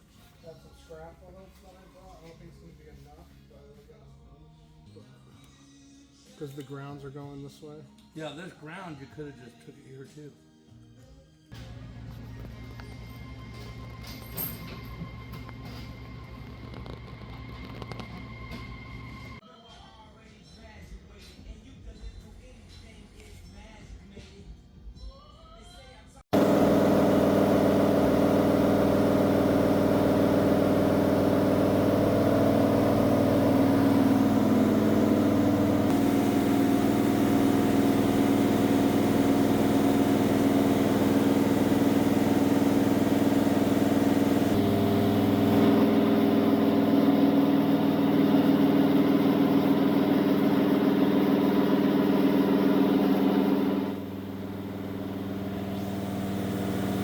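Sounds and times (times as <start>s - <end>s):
race car engine running: 26.3s - 57.0s.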